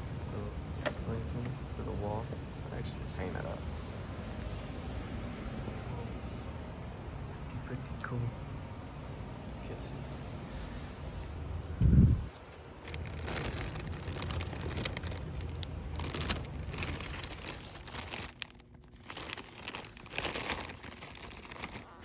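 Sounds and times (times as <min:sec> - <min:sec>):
plastic packaging crinkling: 0:12.6 - 0:22.0.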